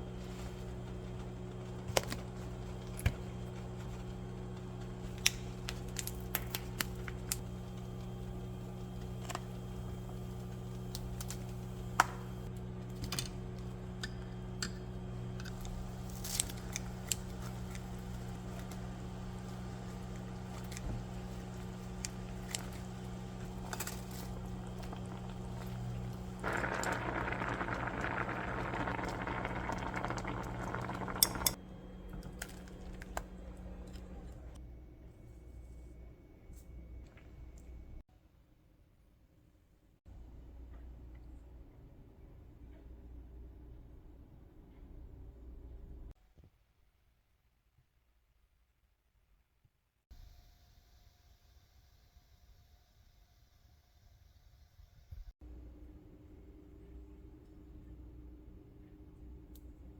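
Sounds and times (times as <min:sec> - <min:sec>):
steady low hum: 0:00.0 - 0:38.0, 0:55.4 - 0:59.9.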